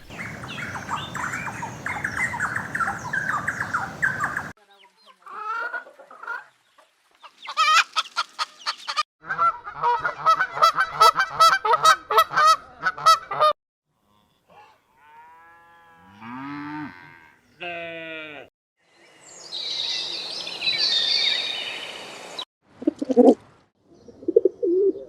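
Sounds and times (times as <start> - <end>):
geese honking: 0.0 - 4.5
low farm animal call: 14.0 - 18.5.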